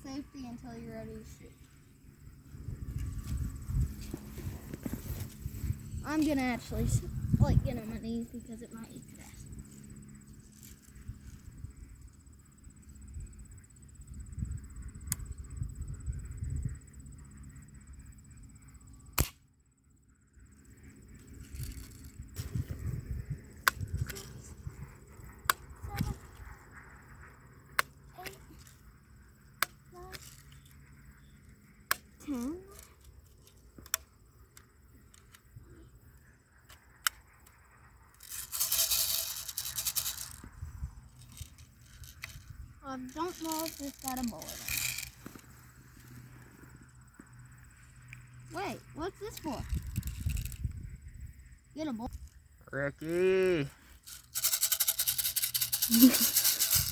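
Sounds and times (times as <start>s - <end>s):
bb gun snaps: 19.2s - 19.4s.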